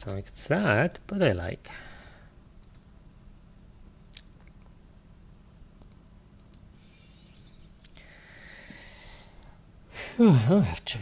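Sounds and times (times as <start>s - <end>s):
faint sharp clicks: 2.6s - 2.9s, 5.8s - 8.0s.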